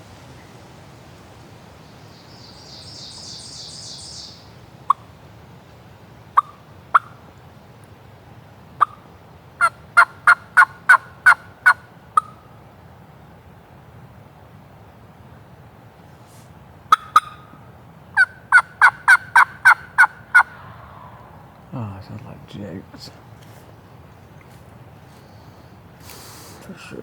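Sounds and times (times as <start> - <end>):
wild turkey yelps: 6.4 - 7.2, 8.8 - 9.0, 9.6 - 12.4, 16.9 - 17.6, 18.2 - 21.5.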